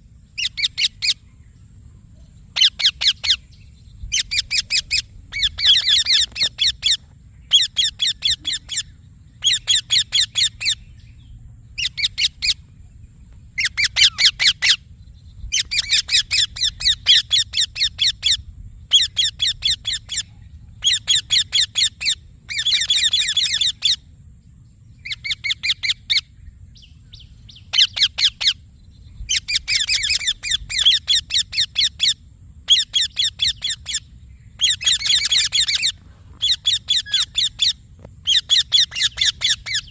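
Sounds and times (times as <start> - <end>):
parakeet harsh chirps: 4.2 - 10.8, 13.6 - 14.8, 20.8 - 24.0, 29.4 - 34.0, 34.6 - 39.9.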